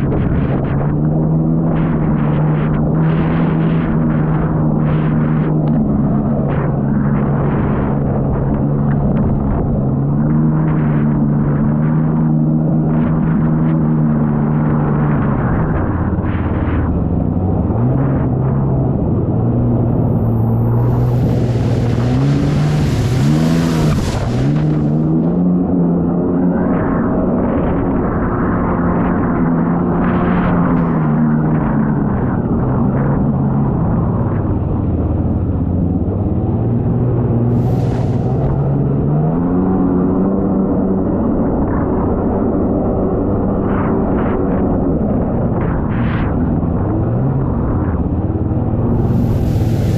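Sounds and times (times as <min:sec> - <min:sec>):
jet ski engine running: 0:00.0 - 0:49.9
wind noise: 0:00.0 - 0:49.9
rushing water: 0:20.2 - 0:26.0, 0:37.4 - 0:39.5, 0:48.9 - 0:49.9
short rushing hiss: 0:49.0 - 0:49.9.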